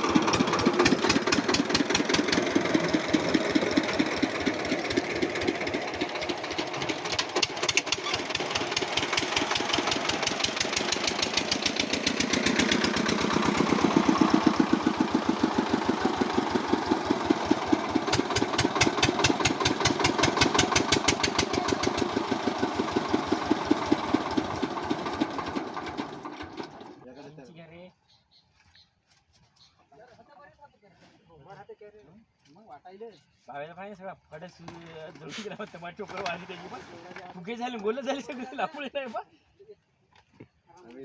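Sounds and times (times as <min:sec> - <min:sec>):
engine running: 0:00.0 - 0:27.0.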